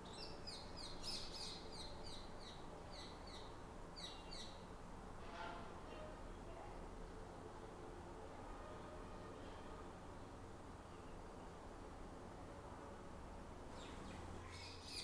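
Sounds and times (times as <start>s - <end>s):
faint bird chirping: 0.0s - 4.7s, 13.7s - 15.0s.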